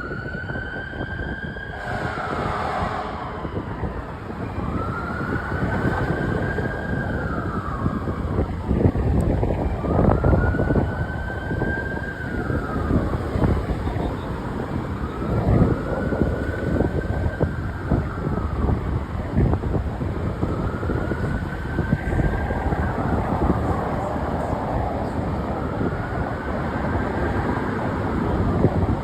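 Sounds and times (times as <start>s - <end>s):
fire engine siren wailing: 0.0s - 29.0s
wind noise on microphone: 0.0s - 29.0s
heavy low rumble: 2.0s - 29.0s.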